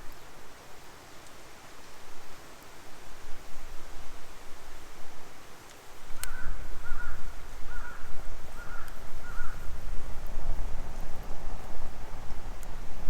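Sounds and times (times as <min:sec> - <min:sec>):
crow cawing: 0:06.3 - 0:09.6.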